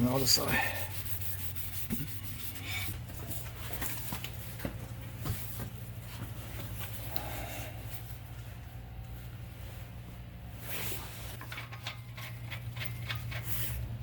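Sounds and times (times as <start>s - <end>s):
steady low hum: 0.0s - 14.0s
rag rubbing brake rotor: 11.4s - 14.0s.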